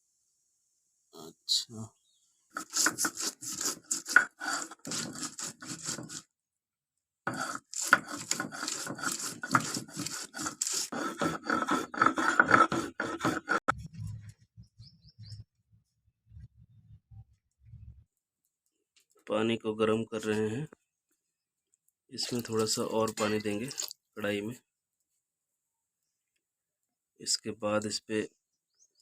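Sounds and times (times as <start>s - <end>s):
hand scraping hard surface: 2.5s - 6.3s, 7.3s - 14.3s.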